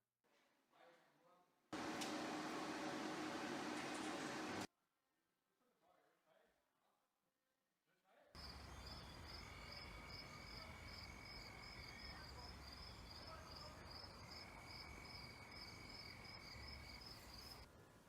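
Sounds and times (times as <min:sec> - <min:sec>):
crickets chirping: 0:08.4 - 0:17.7.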